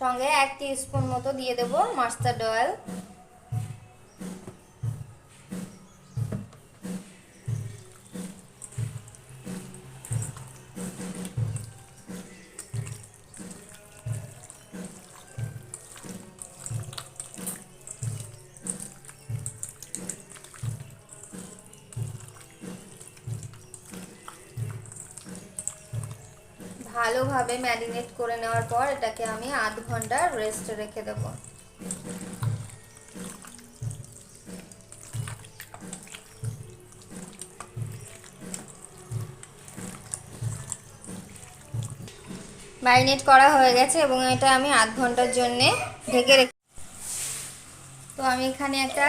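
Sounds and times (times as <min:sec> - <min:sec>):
background music with steady beat: 0:00.0 - 0:49.0
wet squelching of chicken mixed by hand: 0:07.3 - 0:42.4.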